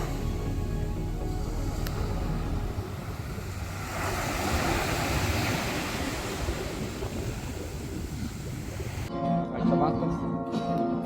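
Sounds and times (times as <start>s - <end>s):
ocean surf washing onto beach: 0.0s - 9.1s
wind rumbling on microphone: 0.0s - 9.1s.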